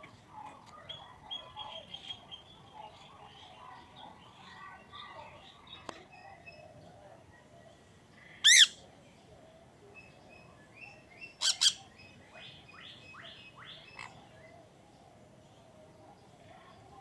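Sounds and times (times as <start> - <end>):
bird harsh calls: 8.3 - 8.8, 11.3 - 11.9.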